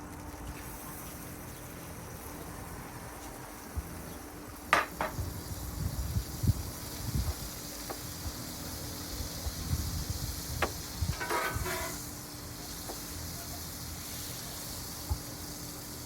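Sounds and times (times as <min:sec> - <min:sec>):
food sizzling on griddle: 0:00.0 - 0:16.0
utensil clinking on griddle: 0:04.7 - 0:05.3, 0:10.5 - 0:13.5.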